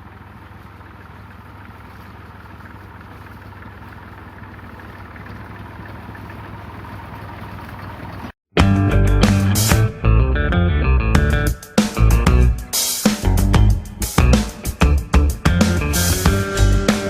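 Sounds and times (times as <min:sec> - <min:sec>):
tractor engine running: 0:00.0 - 0:17.0
guitar music: 0:08.6 - 0:17.0.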